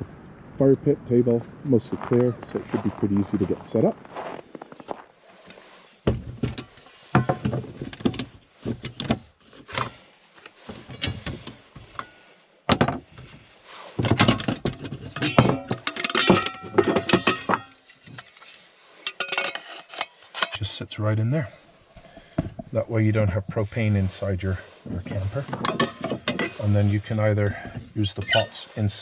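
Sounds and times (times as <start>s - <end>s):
camp gear knocks and thumps: 6.1s - 9.2s, 14.0s - 17.7s, 25.3s - 26.6s.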